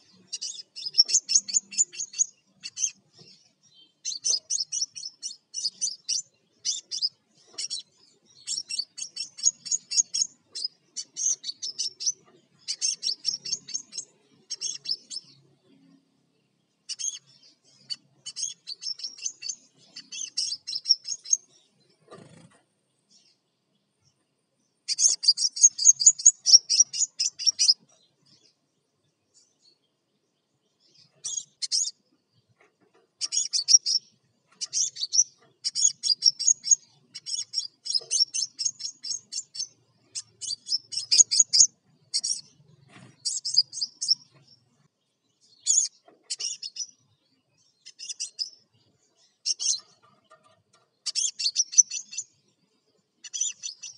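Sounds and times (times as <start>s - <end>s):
sunbird singing high chattering phrases: 0.0s - 22.5s, 24.7s - 28.6s, 30.5s - 53.9s.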